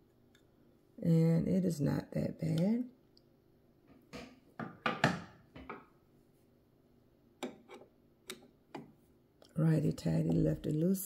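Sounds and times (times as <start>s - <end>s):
screwdriver clicks and scrapes on metal: 7.4s - 8.4s.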